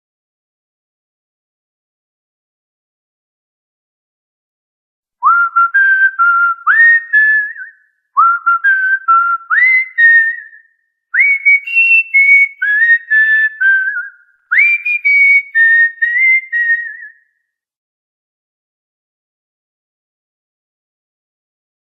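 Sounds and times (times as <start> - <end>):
cockatiel whistling a tune: 5.2 - 10.6, 11.2 - 17.2.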